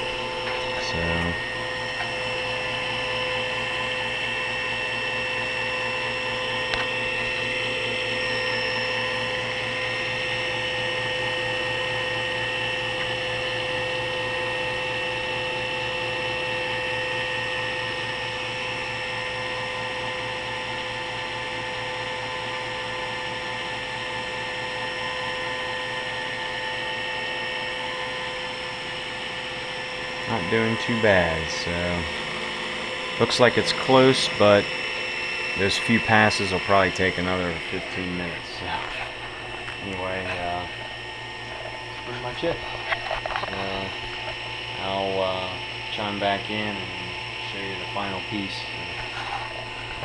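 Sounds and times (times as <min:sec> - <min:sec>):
milling machine cutting whine: 0:00.0 - 0:50.0.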